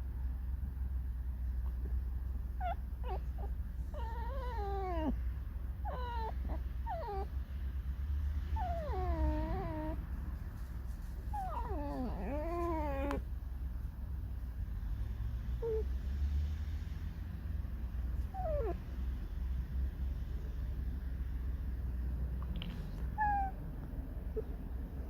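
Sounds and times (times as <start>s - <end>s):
fox whining and squeaking: 2.5s - 7.4s, 8.6s - 10.0s, 11.2s - 13.2s, 23.1s - 23.6s.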